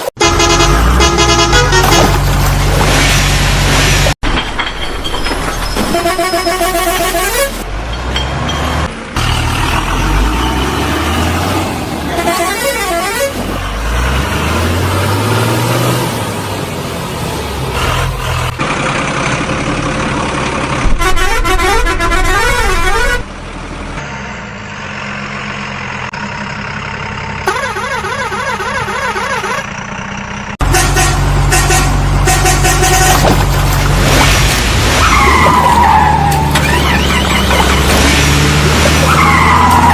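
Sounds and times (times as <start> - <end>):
truck horn honks: 0.0 - 2.3, 5.8 - 7.6, 12.0 - 13.6, 20.8 - 23.3, 27.4 - 29.8, 30.6 - 33.5
heavy truck engines running: 0.0 - 39.9.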